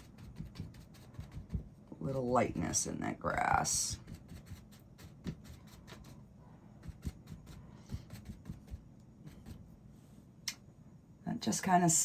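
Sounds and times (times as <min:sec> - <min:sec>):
paint brush tapping on canvas: 0:00.2 - 0:01.7, 0:06.8 - 0:08.8.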